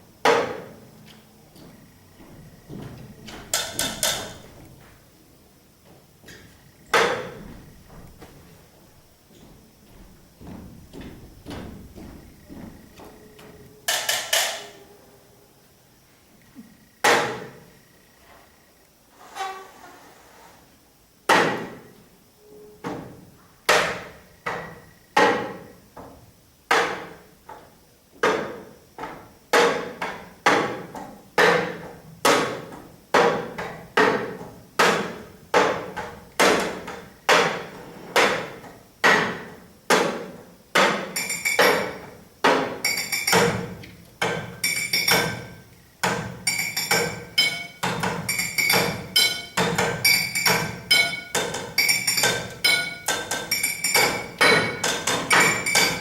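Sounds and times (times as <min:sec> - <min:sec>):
glassy ringing: 0:41.2 - 0:41.9, 0:42.8 - 0:43.5, 0:44.6 - 0:45.6, 0:46.4 - 0:56.0.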